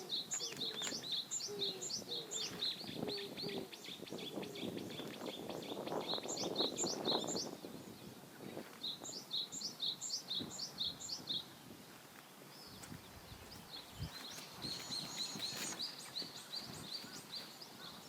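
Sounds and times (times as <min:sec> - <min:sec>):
rough rustling noise: 0:11.6 - 0:18.0.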